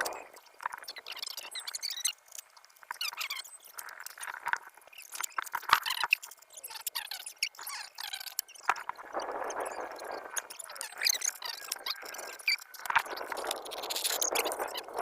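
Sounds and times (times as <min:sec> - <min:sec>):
grip tape rubbing and crinkling: 0:00.0 - 0:15.0
small squeaks: 0:00.0 - 0:15.0.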